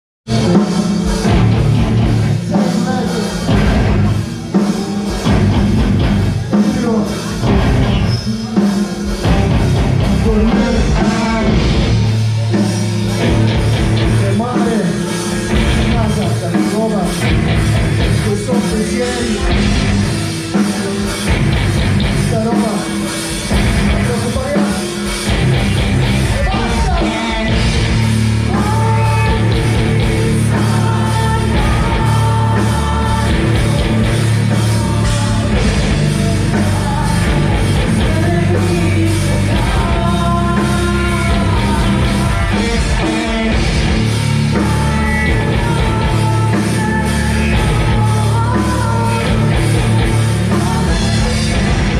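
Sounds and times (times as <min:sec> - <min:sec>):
rock band playing live: 0:00.2 - 0:51.9
lead voice singing: 0:00.3 - 0:51.9.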